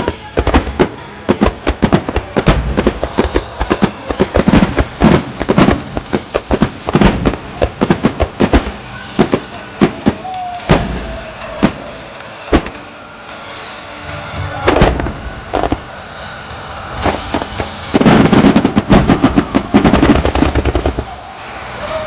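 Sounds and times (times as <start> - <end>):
fireworks bangs and booms: 0.0 - 12.9, 14.4 - 16.1, 16.9 - 21.6.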